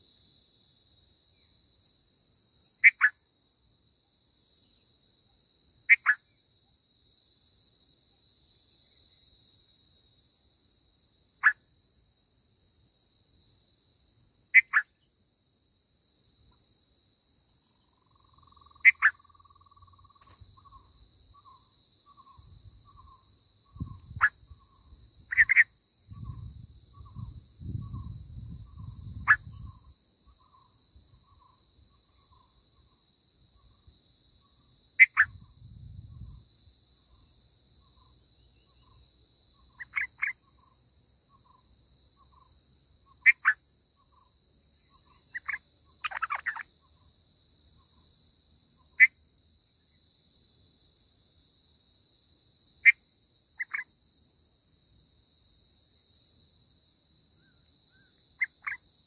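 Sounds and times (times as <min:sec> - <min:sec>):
high insect buzz: 0:00.0 - 0:59.0
sharp bird chirps: 0:02.6 - 0:03.2, 0:05.9 - 0:06.4, 0:11.4 - 0:11.6, 0:14.5 - 0:15.1, 0:17.7 - 0:33.0, 0:35.0 - 0:36.4, 0:39.6 - 0:47.1, 0:53.6 - 0:53.9, 0:57.4 - 0:58.9.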